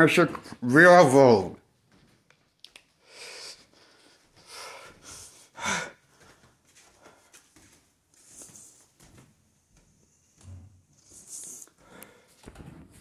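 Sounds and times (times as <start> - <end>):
person breathing noisily: 3.0 - 6.4.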